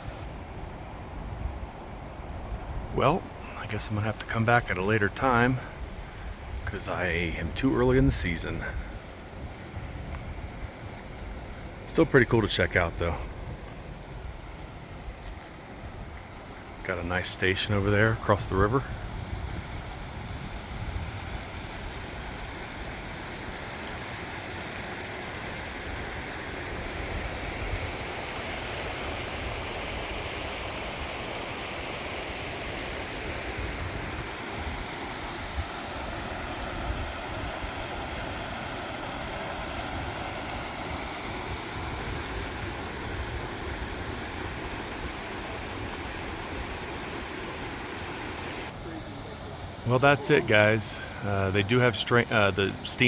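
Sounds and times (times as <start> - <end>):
river rushing over rocks: 30.2 - 53.0.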